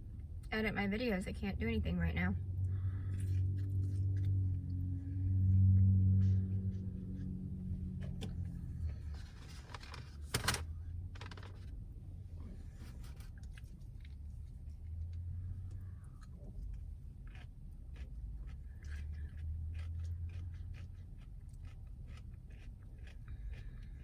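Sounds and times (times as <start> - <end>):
low steady hum: 0.0 - 24.0
person chewing: 2.7 - 9.7, 12.9 - 24.0
food packaging rustling: 9.0 - 11.7.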